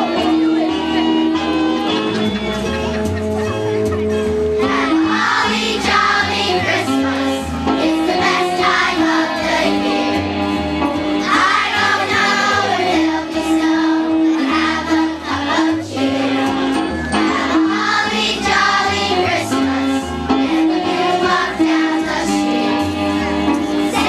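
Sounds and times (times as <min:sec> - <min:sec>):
instrumental accompaniment: 0:00.0 - 0:24.0
children's choir singing: 0:04.6 - 0:10.5, 0:11.2 - 0:24.0.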